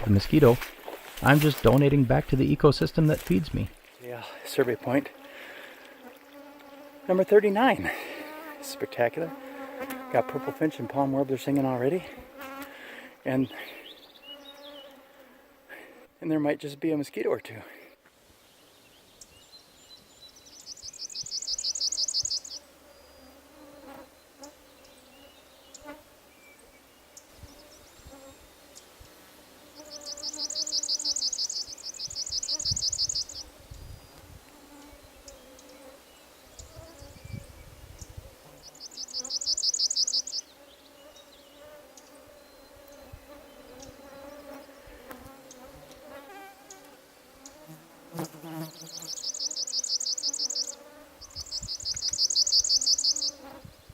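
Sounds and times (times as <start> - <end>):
bird singing high trill: 20.3 - 23.2, 29.8 - 33.5, 38.6 - 40.5, 48.6 - 53.5
mosquitoes whining: 29.6 - 33.6, 38.5 - 53.7.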